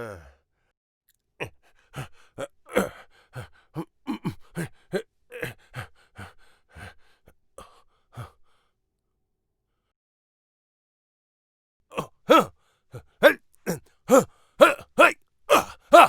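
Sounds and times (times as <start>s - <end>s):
man grunting and gasping: 0.0s - 0.4s, 1.4s - 8.6s, 11.9s - 16.0s.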